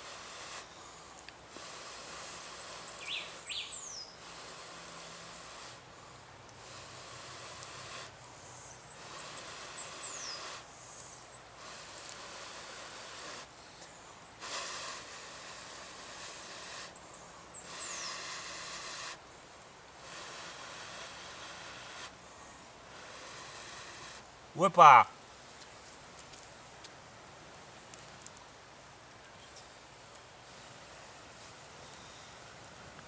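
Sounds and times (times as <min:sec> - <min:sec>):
hissing breaths blown into tinder: 0:00.0 - 0:08.3, 0:08.9 - 0:19.3, 0:20.0 - 0:24.3.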